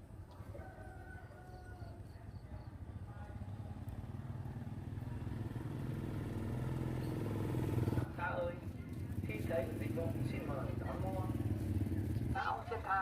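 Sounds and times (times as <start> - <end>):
rooster crowing faintly: 0.2 - 2.4
motorcycle engine approaching: 1.8 - 13.0.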